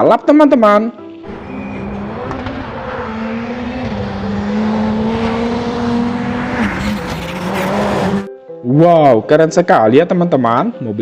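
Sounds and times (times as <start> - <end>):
race car engine high revs: 1.2 - 8.3.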